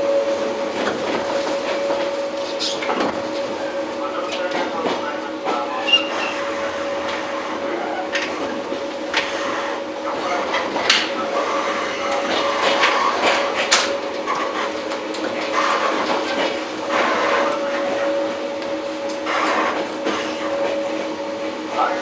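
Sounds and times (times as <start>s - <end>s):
train equipment hum: 0.0s - 22.0s
clicks and knocks from train body: 12.2s - 16.6s.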